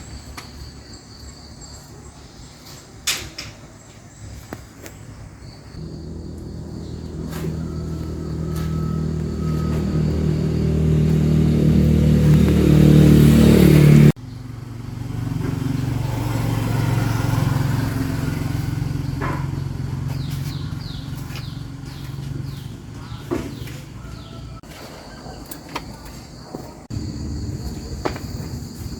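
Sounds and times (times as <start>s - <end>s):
low engine hum: 5.7s - 24.6s
engine running: 5.8s - 24.7s.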